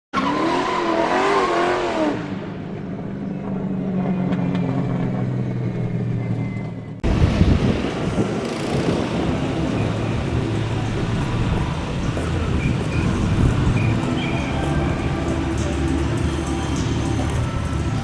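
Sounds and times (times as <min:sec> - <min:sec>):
rough engine noise: 0:02.6 - 0:18.0
car engine revving and idling: 0:07.0 - 0:18.0.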